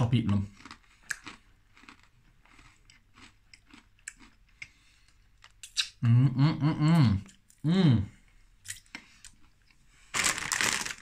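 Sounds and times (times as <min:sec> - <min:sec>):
crunchy chewing of pretzels: 0:00.3 - 0:06.0, 0:08.3 - 0:11.0
person humming mmm: 0:06.0 - 0:08.2.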